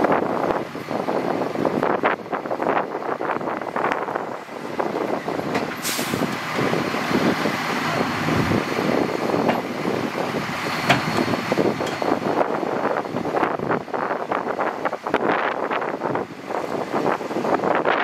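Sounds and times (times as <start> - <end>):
dump truck engine running: 0.0 - 18.0
air hiss: 5.8 - 6.4.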